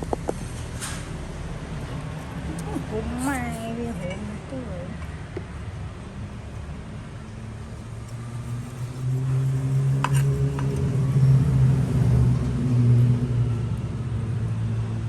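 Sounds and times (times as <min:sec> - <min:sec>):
vehicle engine passing: 0:05.8 - 0:15.0.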